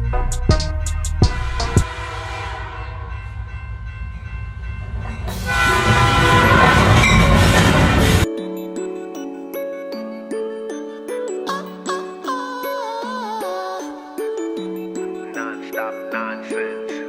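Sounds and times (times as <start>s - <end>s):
passing train rumble: 0.0s - 8.3s
train horn blowing: 1.3s - 3.4s, 5.3s - 8.3s.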